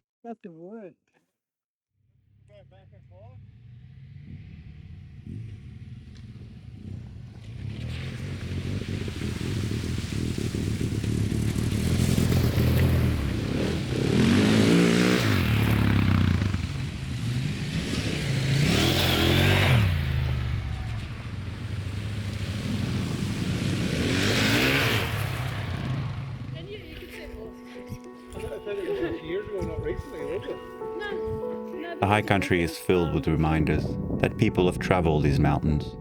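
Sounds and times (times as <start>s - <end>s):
motorcycle engines accelerating: 2.9s - 30.5s.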